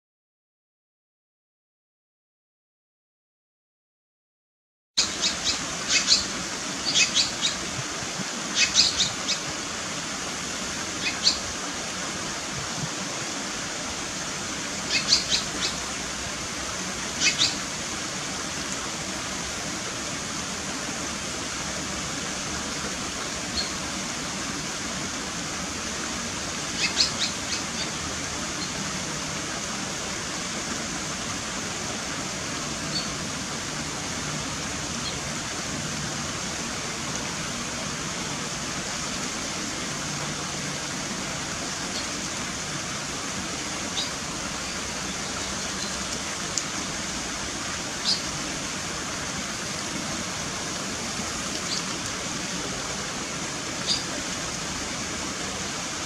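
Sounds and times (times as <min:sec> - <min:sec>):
short high bird calls: 0:05.0 - 0:07.6, 0:08.6 - 0:09.4, 0:11.0 - 0:11.4, 0:14.9 - 0:15.8, 0:26.8 - 0:27.9, 0:53.8 - 0:54.1
running water rushing: 0:05.0 - 0:56.0.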